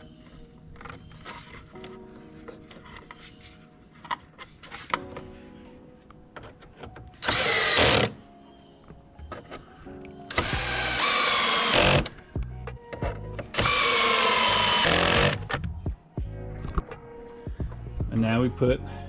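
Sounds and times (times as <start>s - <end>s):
power driver whining: 7.2s - 8.2s, 10.3s - 12.2s, 13.6s - 15.6s.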